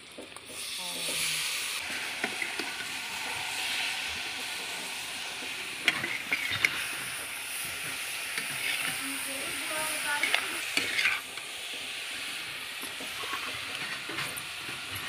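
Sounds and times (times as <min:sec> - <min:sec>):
shrimp sizzling in hot oil: 0:00.0 - 0:15.0
metal spatula stirring: 0:05.8 - 0:06.8, 0:08.4 - 0:09.0, 0:10.1 - 0:11.3.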